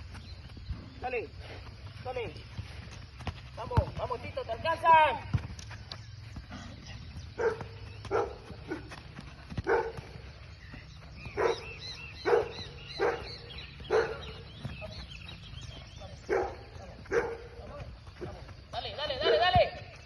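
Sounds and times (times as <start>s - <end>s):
dog barking: 7.4s - 8.9s, 9.6s - 10.0s, 11.4s - 14.3s, 16.3s - 17.5s.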